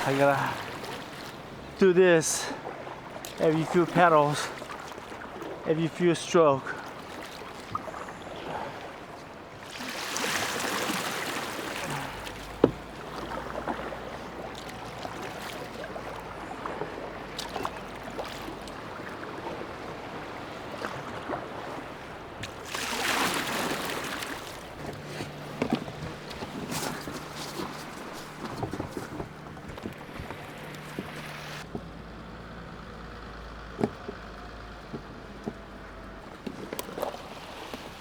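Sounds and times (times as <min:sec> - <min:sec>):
water splashing around kayak: 0:00.0 - 0:33.0, 0:33.7 - 0:38.0.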